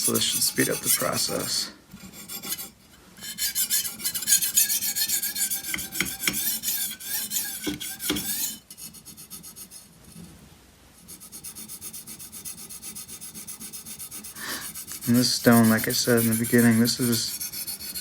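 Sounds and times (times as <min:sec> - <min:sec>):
knife scraping on sharpening stone: 0:00.0 - 0:01.5, 0:02.1 - 0:09.8, 0:13.8 - 0:18.0.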